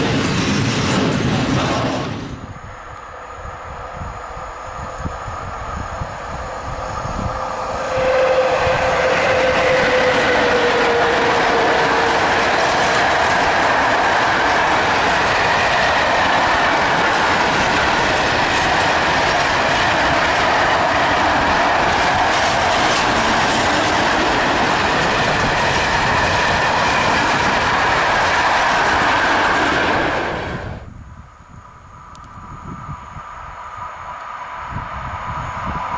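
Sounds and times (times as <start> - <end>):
high wheel squeal: 3.4 - 13.4
wheels clattering on rail joints: 7.5 - 30.3.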